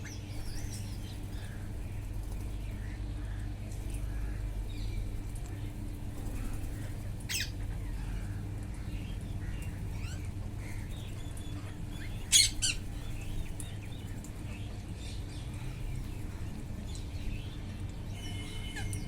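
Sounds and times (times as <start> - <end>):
steady low rumble: 0.0 - 18.2
parrots squawking: 12.0 - 12.9.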